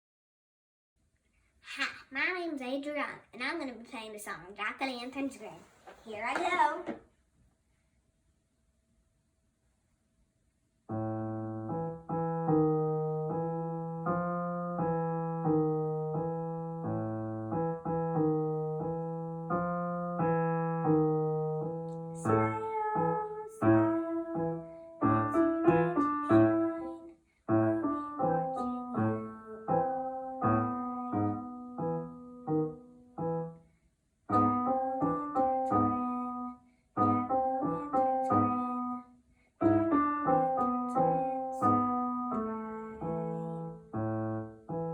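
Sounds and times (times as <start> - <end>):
solo piano piece: 10.9 - 33.6, 34.3 - 44.9.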